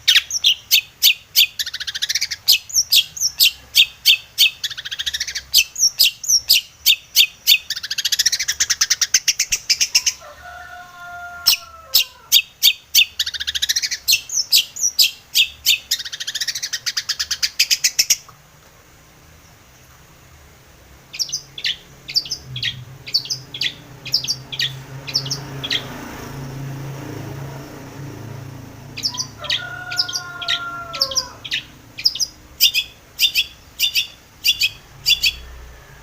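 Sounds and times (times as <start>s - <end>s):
bird singing chattering notes: 0.0s - 10.2s, 12.3s - 18.3s, 21.0s - 26.0s, 28.9s - 35.5s.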